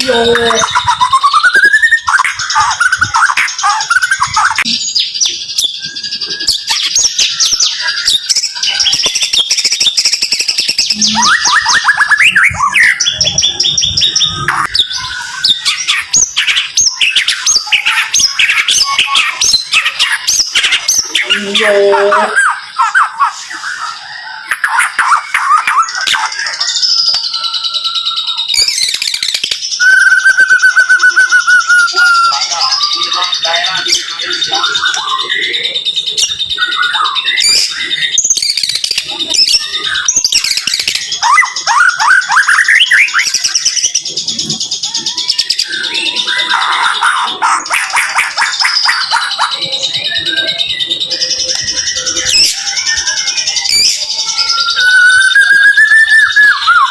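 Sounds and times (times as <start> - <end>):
bird singing sharp whistled notes: 0.0 - 21.8, 23.6 - 33.2.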